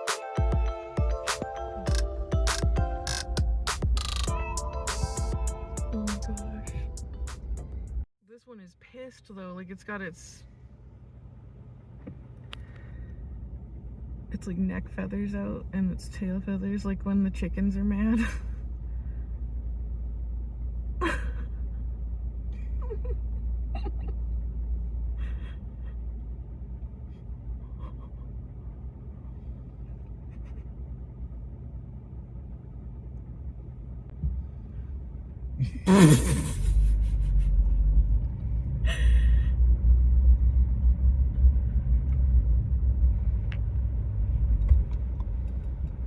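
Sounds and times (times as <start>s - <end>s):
car engine running: 10.0s - 46.0s.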